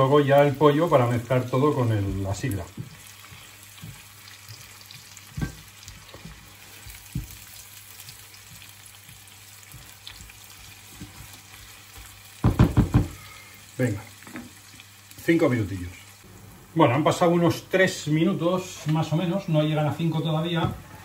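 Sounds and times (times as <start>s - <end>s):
food sizzling in oil: 0.0s - 20.4s
spatula knocking against pan: 12.4s - 13.2s.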